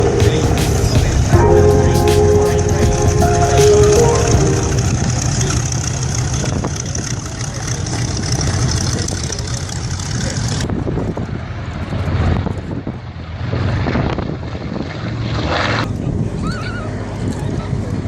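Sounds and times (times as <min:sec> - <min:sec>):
propeller aircraft engines droning: 0:00.0 - 0:10.6.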